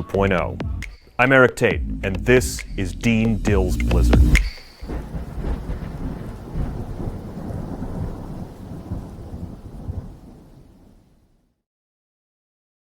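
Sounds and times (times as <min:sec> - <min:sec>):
thunder rumble: 0:01.8 - 0:11.4
rain-like hiss: 0:03.4 - 0:11.6.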